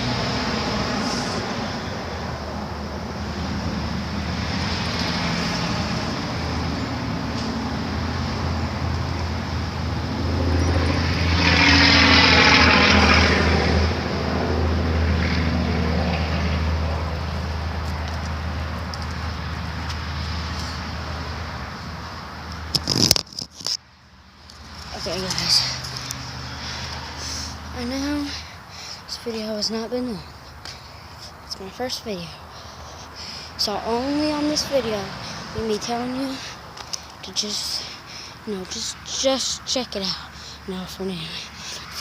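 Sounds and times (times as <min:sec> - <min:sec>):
car driving past: 0:00.0 - 0:22.8
road rumble: 0:00.0 - 0:42.0.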